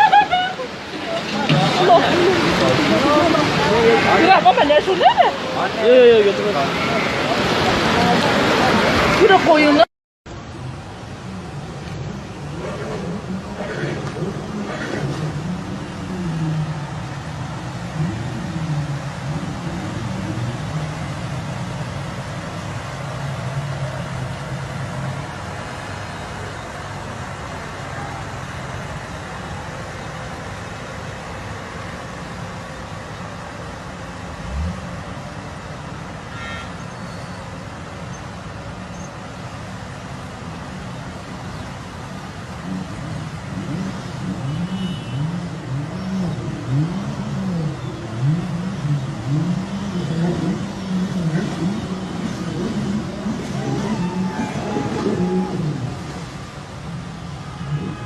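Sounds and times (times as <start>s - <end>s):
jet ski engine revving: 1.1s - 4.8s, 11.5s - 26.1s, 42.4s - 58.0s.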